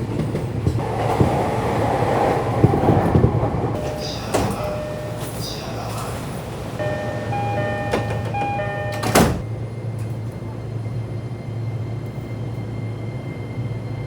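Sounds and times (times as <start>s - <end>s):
train humming: 0.0s - 14.0s
sliding doors shutting with thud: 0.6s - 9.5s
two-note electronic door chime: 3.8s - 5.4s, 6.8s - 9.4s.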